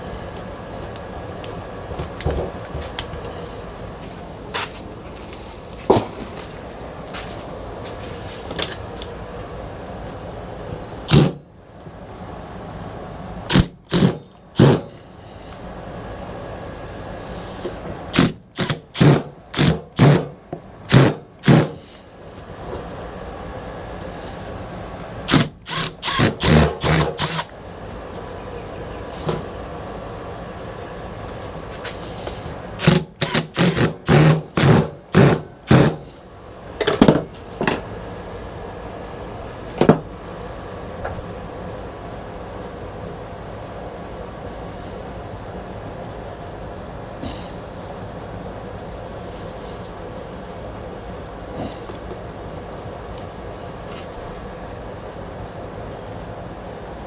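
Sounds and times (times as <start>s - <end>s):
power drill short bursts: 13.5s - 14.8s, 18.1s - 20.3s, 20.9s - 21.9s, 25.3s - 27.5s, 32.8s - 36.1s.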